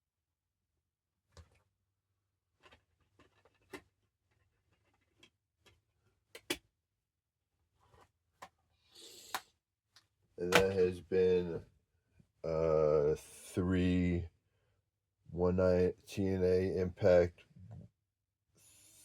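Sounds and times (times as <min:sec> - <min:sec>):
plastic case clicks and taps: 0:06.4 - 0:06.6, 0:10.5 - 0:10.8.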